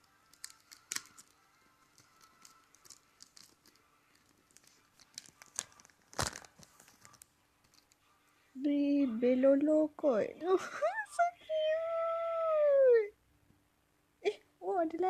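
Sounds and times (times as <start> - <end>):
packaging crinkling and rustling: 0.2 - 8.0.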